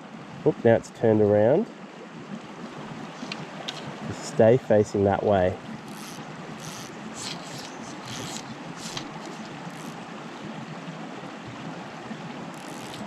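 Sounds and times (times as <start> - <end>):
stream flowing: 0.0 - 13.0.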